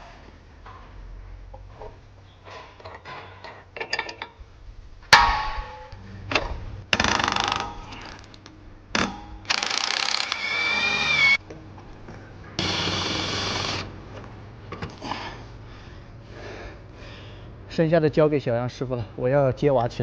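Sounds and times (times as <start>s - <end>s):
power wrench whining: 6.9s - 8.2s, 9.0s - 11.4s, 12.6s - 13.9s.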